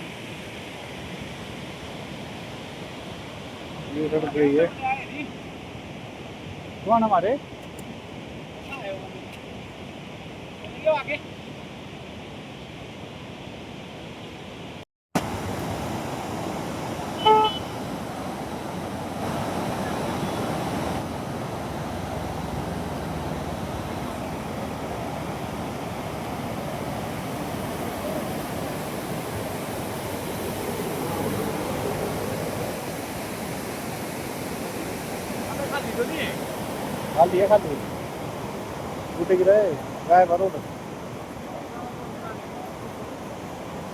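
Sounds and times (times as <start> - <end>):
short vehicle horn toot: 17.2 - 17.8.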